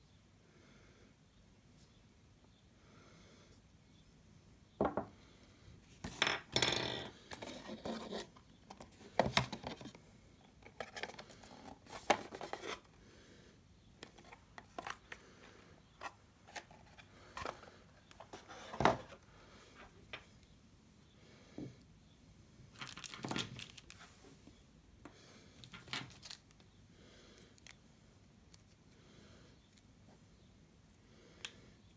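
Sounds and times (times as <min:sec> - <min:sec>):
hands handling plastic parts: 0:06.0 - 0:12.9, 0:14.0 - 0:15.2, 0:16.0 - 0:19.2, 0:22.8 - 0:24.2.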